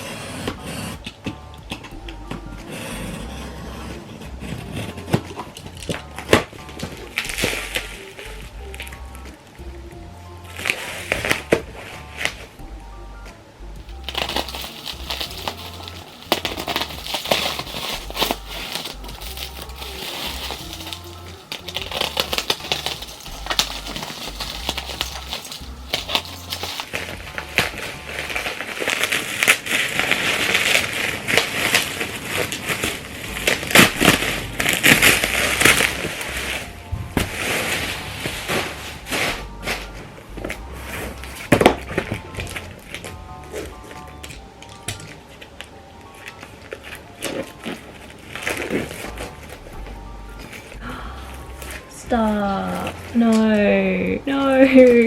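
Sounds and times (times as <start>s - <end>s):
soft background music: 0.0s - 55.0s
plastic wrap crinkling: 13.8s - 50.8s.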